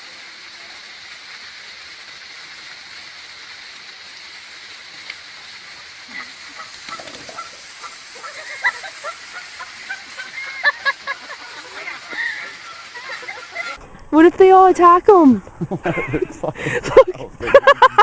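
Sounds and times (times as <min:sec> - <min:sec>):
steady hiss: 0:00.0 - 0:18.0
geese honking: 0:05.9 - 0:13.8.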